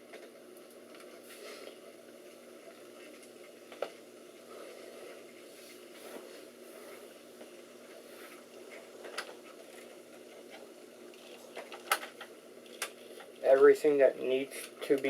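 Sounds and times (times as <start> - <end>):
faint steady hum: 0.0 - 15.0
clicks and knocks handling computer parts: 11.2 - 13.6.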